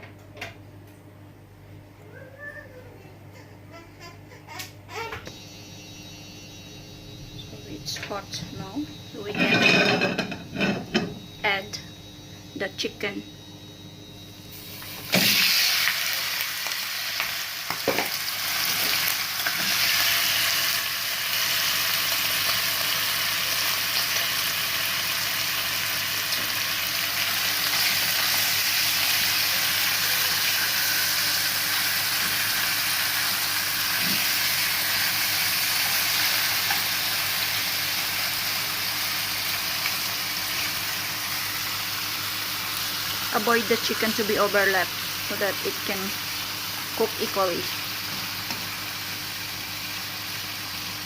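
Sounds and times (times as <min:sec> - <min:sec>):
chicken sizzling in oil: 0:14.4 - 0:51.0.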